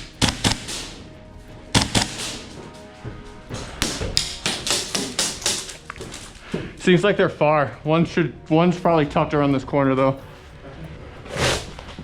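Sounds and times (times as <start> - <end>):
sharp echoing rifle shots: 0.0 - 1.1, 1.8 - 2.6.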